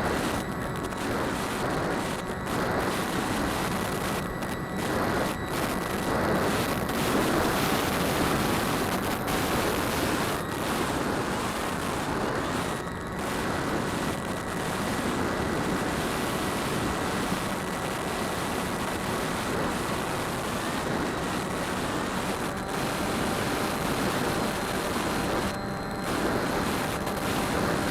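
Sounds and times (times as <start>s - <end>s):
wind over microphone: 0.0s - 27.9s.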